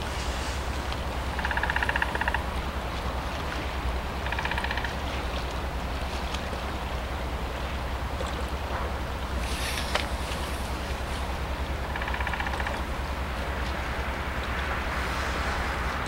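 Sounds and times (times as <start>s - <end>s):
wind noise: 0.0s - 2.8s, 13.0s - 16.0s
distant diesel locomotive rumbling: 0.0s - 16.0s.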